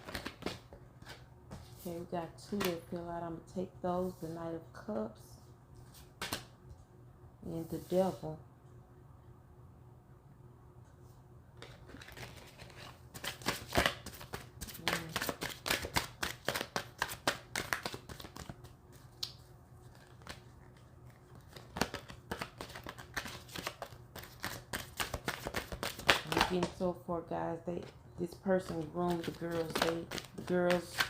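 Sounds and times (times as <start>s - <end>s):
cards being shuffled: 11.6s - 19.2s, 19.9s - 26.7s, 28.6s - 31.0s.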